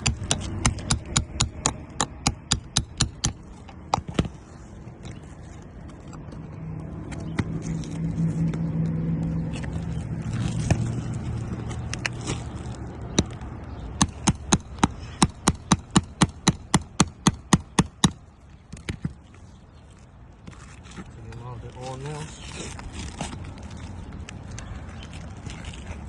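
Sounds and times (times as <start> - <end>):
vehicle engine passing by: 6.5 - 13.5.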